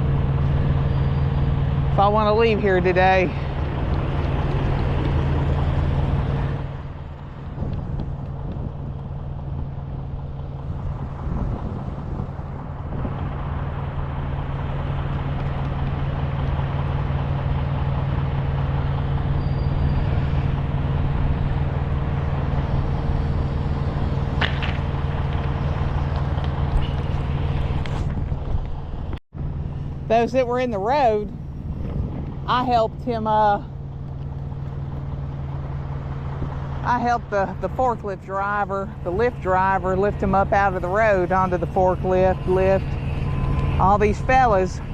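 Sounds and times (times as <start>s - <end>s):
heavy vehicle engine idling: 0.0s - 44.9s.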